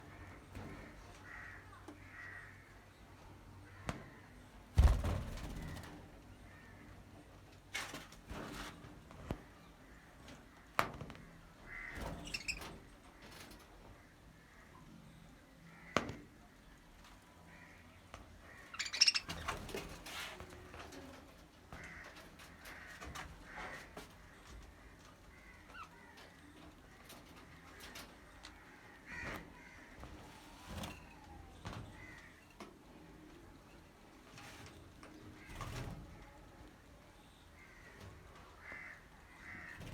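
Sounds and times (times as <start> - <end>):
budgerigars chirping: 18.8 - 19.3.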